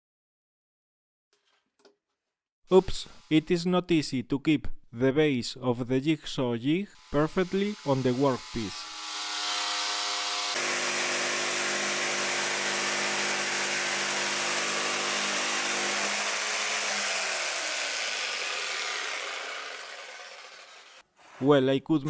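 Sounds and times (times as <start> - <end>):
jigsaw cutting wood: 7.0 - 21.0.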